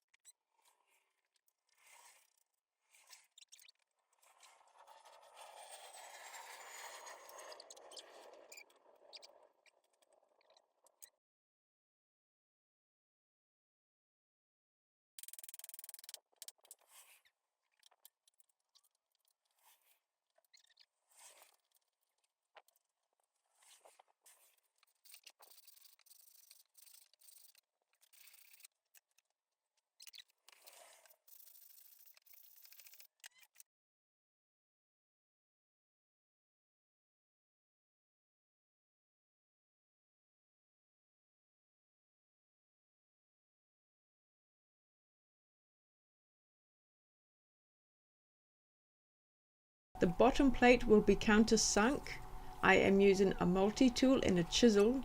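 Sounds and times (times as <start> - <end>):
small ticks: 0.0 - 5.4, 6.7 - 11.2, 15.2 - 22.9, 23.7 - 33.7
faint scrapes and clicks: 0.1 - 11.2, 15.2 - 33.7.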